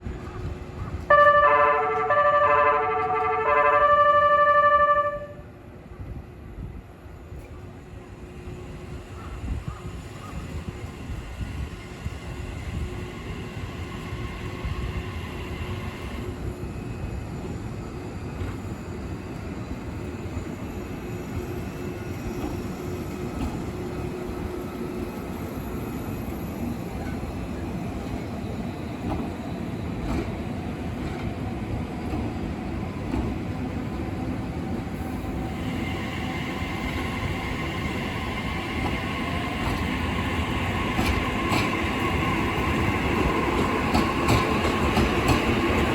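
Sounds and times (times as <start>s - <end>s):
train rumbling: 0.0s - 45.9s.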